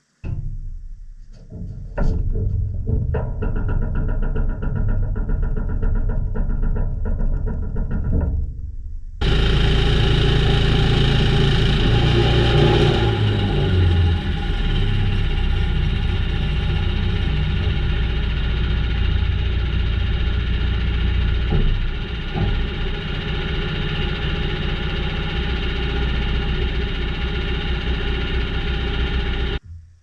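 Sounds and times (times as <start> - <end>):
sawmill engine running: 9.2 - 29.6.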